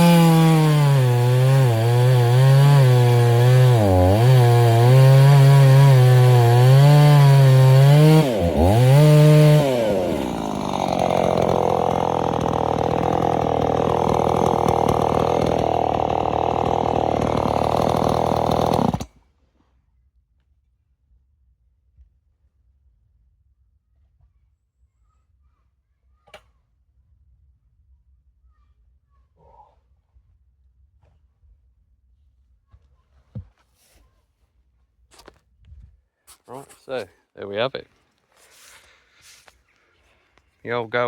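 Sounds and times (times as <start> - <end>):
chainsaw cutting wood: 0.0 - 19.2.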